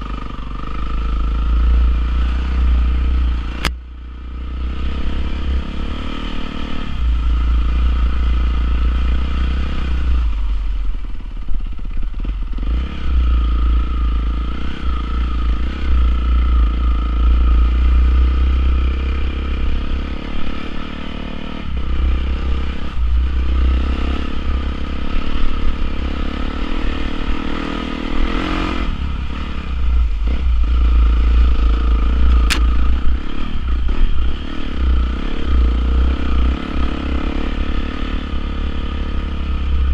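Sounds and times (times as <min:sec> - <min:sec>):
dirt bike engine revving: 0:12.2 - 0:39.9.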